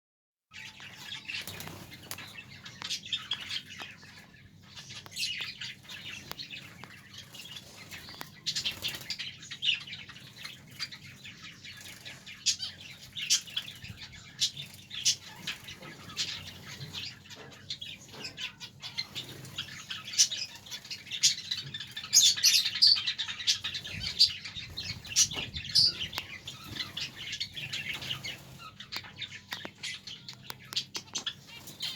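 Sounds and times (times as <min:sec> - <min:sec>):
small birds chirping: 0:00.5 - 0:31.9.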